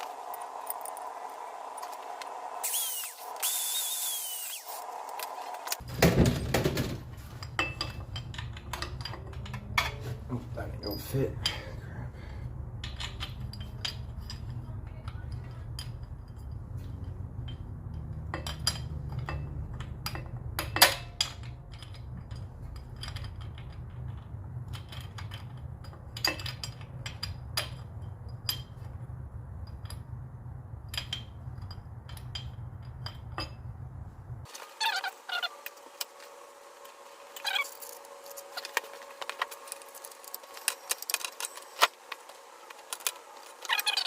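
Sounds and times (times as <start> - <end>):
steel parts clinking: 0.0 - 11.8, 12.7 - 44.0
steady low hum: 0.0 - 34.5.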